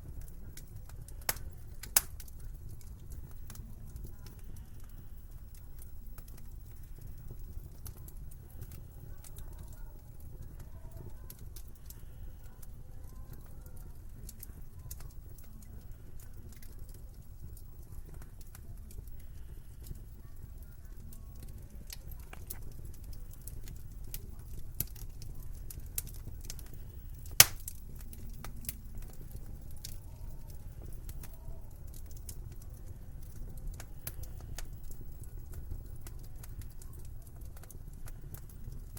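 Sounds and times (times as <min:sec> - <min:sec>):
fire popping: 0:00.0 - 0:38.9
low rumble of fire: 0:00.0 - 0:38.9
loud sharp fire pop: 0:27.4 - 0:27.7.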